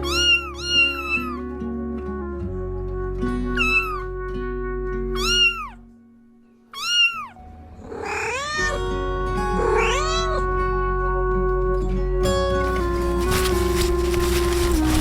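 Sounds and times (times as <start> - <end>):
cat meowing: 0.0 - 1.4, 3.6 - 4.0, 5.2 - 5.8, 6.7 - 8.8, 9.5 - 10.6
background music: 0.0 - 15.0.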